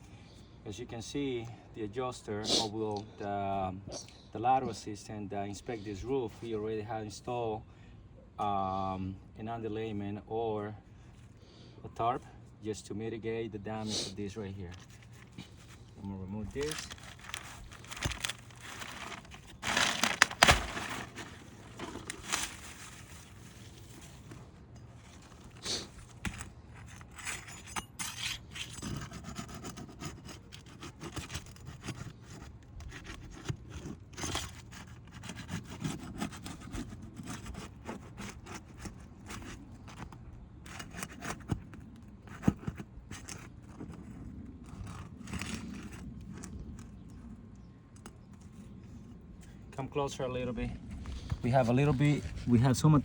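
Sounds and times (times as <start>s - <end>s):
tarp rustling: 14.6s - 27.5s
shingles scraping: 14.6s - 47.0s.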